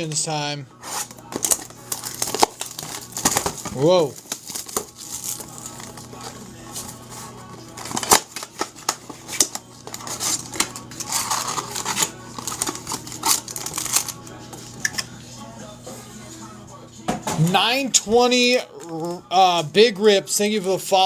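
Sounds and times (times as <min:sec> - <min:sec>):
paper rustling: 0:00.8 - 0:14.2
cards clicking and snapping: 0:01.3 - 0:06.0, 0:07.8 - 0:14.2.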